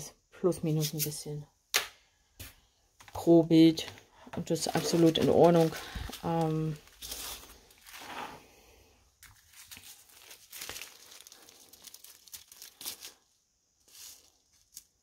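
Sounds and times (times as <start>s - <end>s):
plastic bags crinkling: 3.8s - 8.2s, 9.2s - 15.0s.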